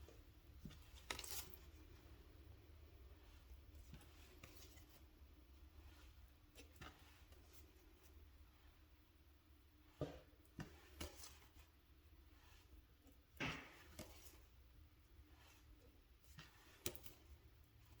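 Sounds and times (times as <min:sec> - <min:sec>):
cards tapping and brushing: 0:00.5 - 0:01.9, 0:03.4 - 0:05.0.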